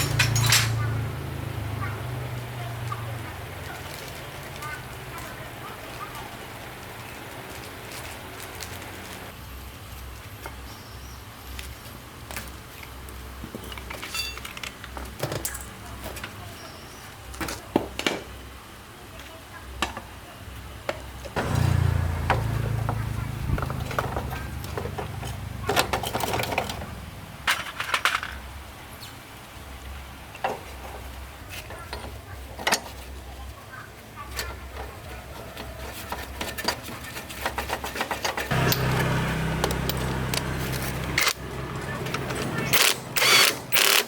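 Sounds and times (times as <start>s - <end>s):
clicks and knocks: 0.0s - 1.2s
small motor humming: 21.4s - 24.7s, 38.5s - 44.0s
sharp clicks and knocks: 37.6s - 44.0s.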